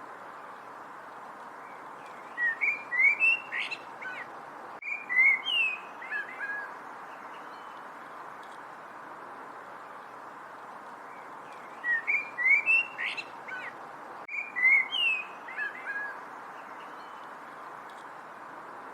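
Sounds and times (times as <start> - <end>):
steady background hiss: 0.0 - 18.9
songbird chirping: 0.3 - 8.7, 9.6 - 18.8.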